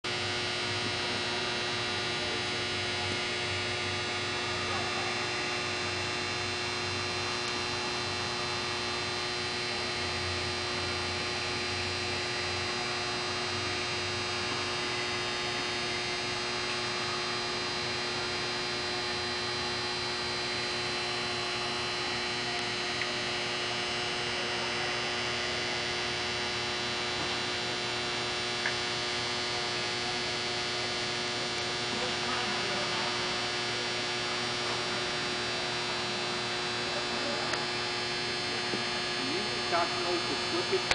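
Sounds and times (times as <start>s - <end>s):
steady electrical hum: 0.1s - 40.9s.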